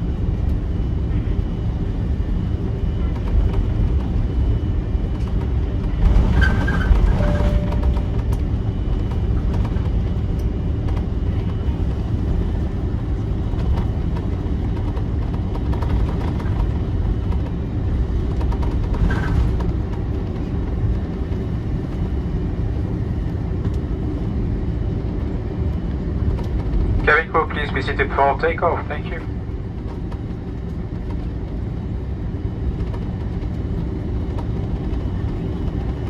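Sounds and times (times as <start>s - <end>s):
airliner engines rumbling while taxiing: 0.0s - 36.0s
rolling landing gear: 1.6s - 29.0s.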